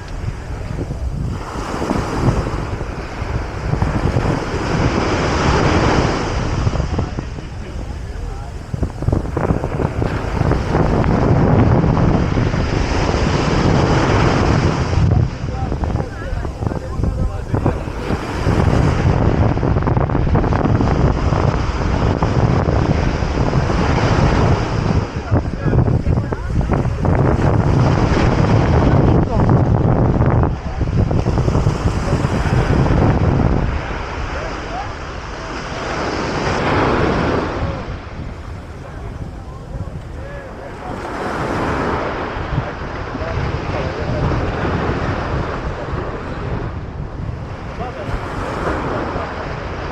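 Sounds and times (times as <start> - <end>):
ocean surf breaking: 0.0 - 49.9
wind buffeting microphone: 0.0 - 49.9.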